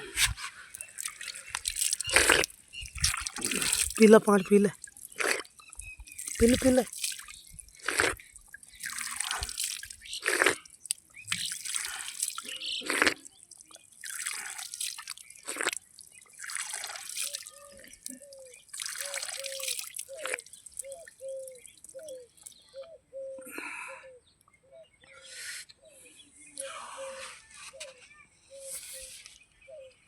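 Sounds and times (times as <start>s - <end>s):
water splashing and dripping: 0.2s - 22.6s.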